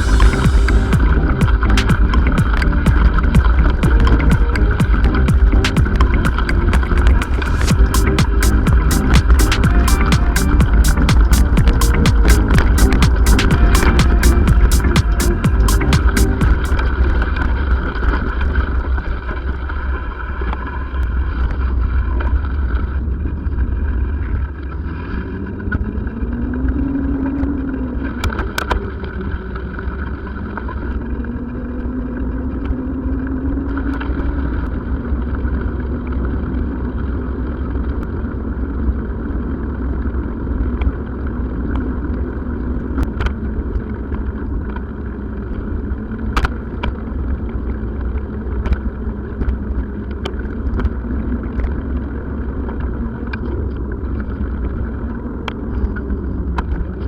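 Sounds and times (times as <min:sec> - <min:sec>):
vehicle road and engine rumble: 0:00.0 - 0:10.0.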